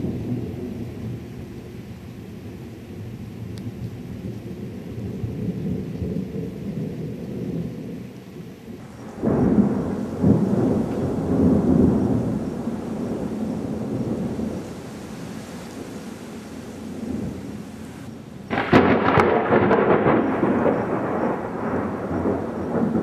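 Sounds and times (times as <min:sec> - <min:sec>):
thunder rumbling: 0:03.1 - 0:23.0
thunder clap: 0:08.8 - 0:15.0, 0:16.8 - 0:23.0.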